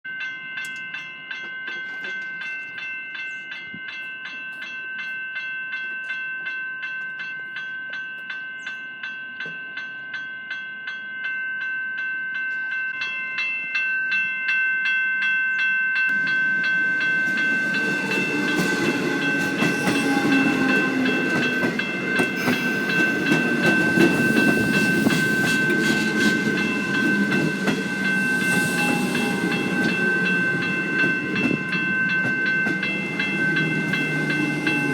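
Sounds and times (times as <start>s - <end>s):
level-crossing bell ringing: 0.1s - 34.9s
train wheels clattering on rails: 16.1s - 34.9s.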